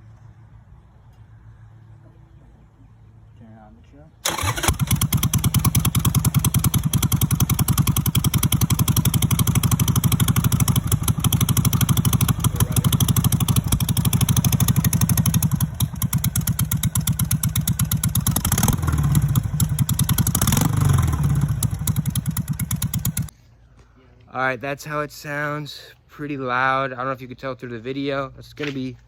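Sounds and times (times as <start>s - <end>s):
motorcycle engine revving: 4.2s - 23.3s
motorcycle engine idling: 4.3s - 23.3s.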